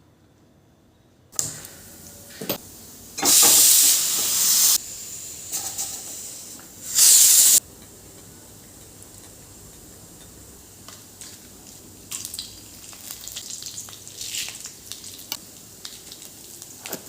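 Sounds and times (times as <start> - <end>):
loud hissing bursts: 1.4 - 7.6.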